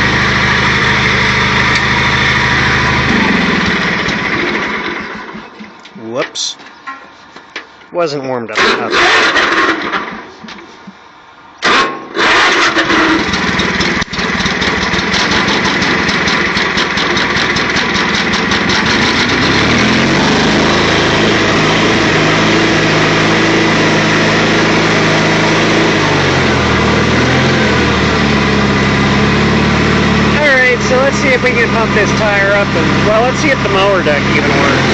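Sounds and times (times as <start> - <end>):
lawn tractor engine running: 0.0 - 6.6, 8.5 - 10.6, 11.6 - 34.9
engine cranking: 8.5 - 10.4, 11.6 - 22.4.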